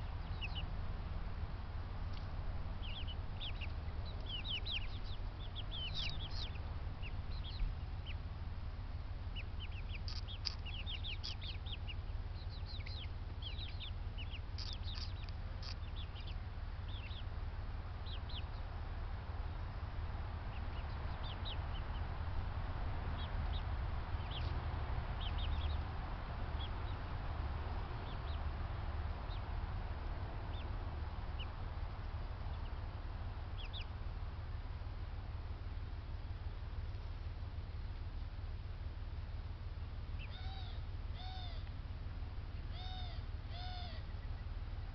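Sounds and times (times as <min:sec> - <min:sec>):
birds chirping: 0:00.0 - 0:44.9
steady low hum: 0:00.0 - 0:44.9.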